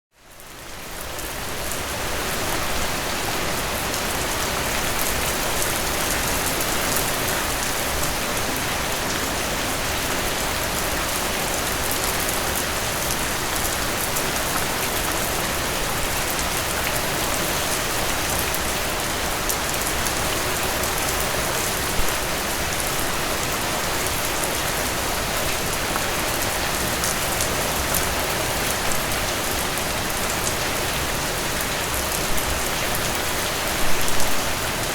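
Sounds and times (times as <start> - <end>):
steady rain falling: 0.2 - 34.9.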